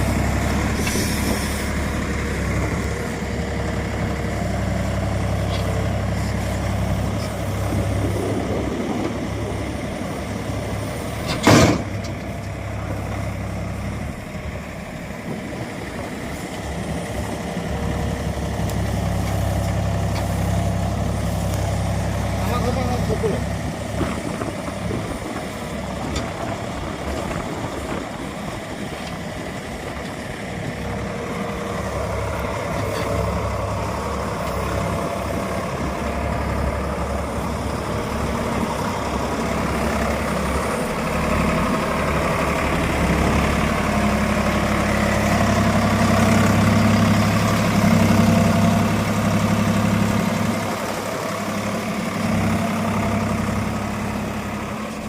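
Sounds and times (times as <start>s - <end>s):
tractor diesel engine revving: 0.0s - 55.0s.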